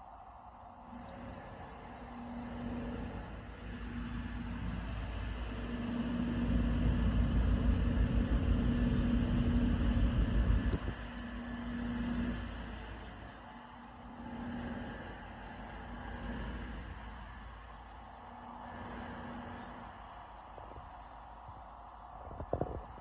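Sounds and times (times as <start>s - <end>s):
ship engine droning: 0.0s - 23.0s.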